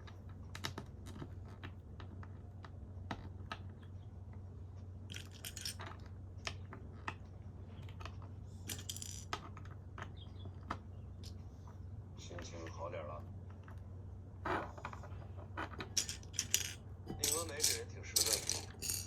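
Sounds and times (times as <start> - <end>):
plastic toy bricks clicking: 5.1 - 7.2, 7.9 - 11.4, 15.6 - 19.0.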